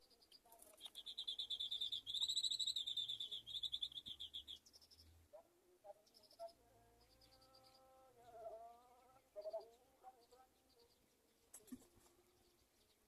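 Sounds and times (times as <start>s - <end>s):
bird chattering trill: 0.8s - 5.0s.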